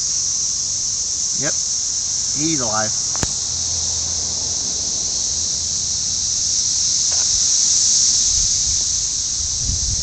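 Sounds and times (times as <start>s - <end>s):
cicadas singing: 0.0s - 10.0s
low rumbling: 2.3s - 10.0s.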